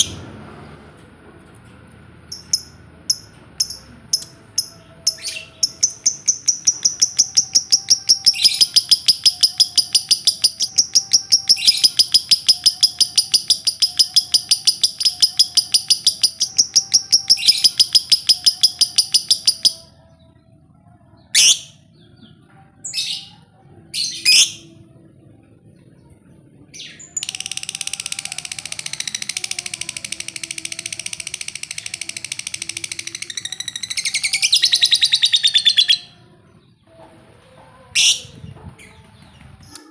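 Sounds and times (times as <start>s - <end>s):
bird rapid high chattering: 2.3s - 19.8s, 27.1s - 36.1s.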